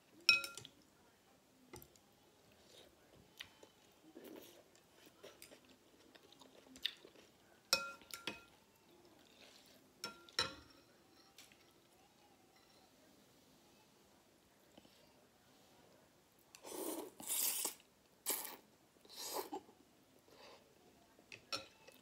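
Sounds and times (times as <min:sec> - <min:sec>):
chewing noodle soup: 0:01.9 - 0:09.8.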